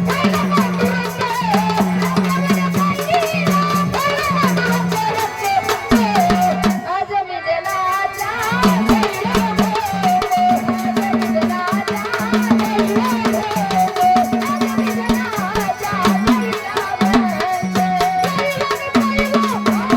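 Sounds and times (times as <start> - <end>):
hand drum beating fast rhythm: 0.0 - 6.9, 8.4 - 19.9
rattling percussion: 0.0 - 19.9.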